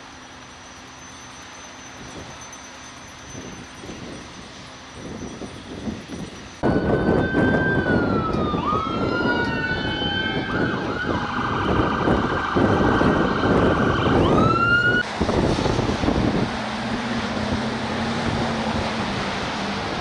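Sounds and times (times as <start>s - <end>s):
emergency sirens wailing: 6.6s - 20.0s
loud rumbling noise: 6.6s - 20.0s.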